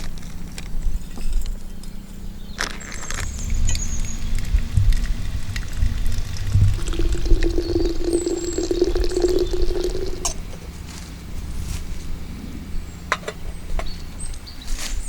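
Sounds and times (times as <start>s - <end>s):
bird chirping: 1.6s - 10.3s
liquid pouring into container: 3.2s - 10.6s
low steady rumble: 3.2s - 13.6s.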